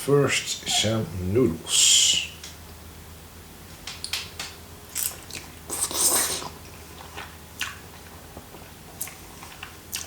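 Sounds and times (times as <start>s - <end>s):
wet chewing and mouth smacks: 4.0s - 10.0s
person slurping noodles: 5.7s - 6.6s.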